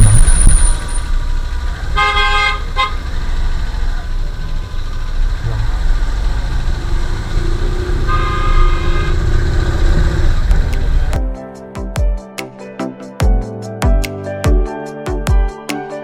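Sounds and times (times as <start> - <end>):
road traffic rumble: 0.0 - 11.2
vehicle horn: 1.8 - 3.2, 7.4 - 10.0.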